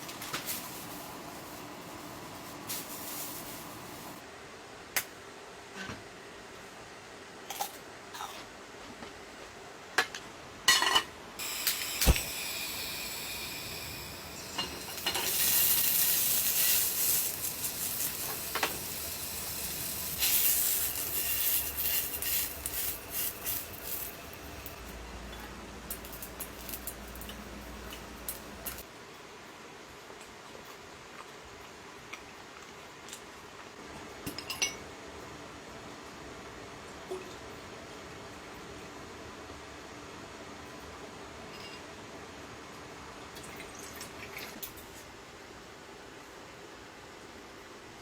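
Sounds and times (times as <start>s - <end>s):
hissing: 11.4s - 25.0s.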